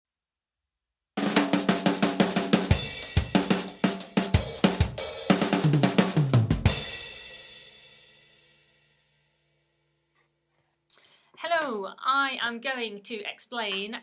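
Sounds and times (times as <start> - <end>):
tom fill: 1.2 - 7.4
drum kit groove: 1.2 - 8.0.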